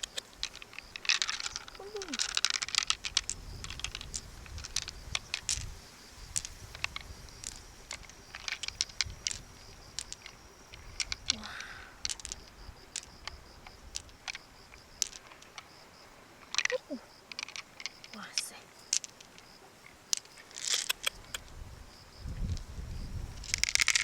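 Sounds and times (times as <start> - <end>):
clicks and taps of hard objects: 10.0 - 15.7.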